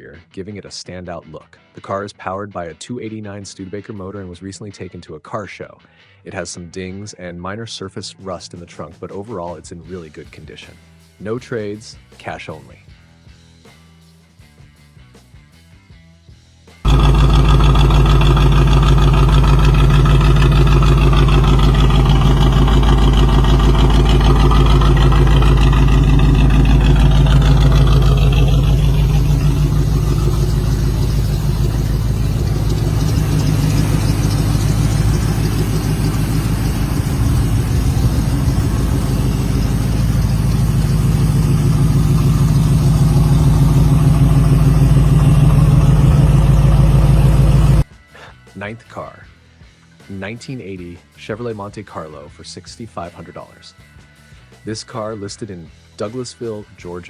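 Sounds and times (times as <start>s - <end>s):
car engine idling: 16.9s - 47.8s.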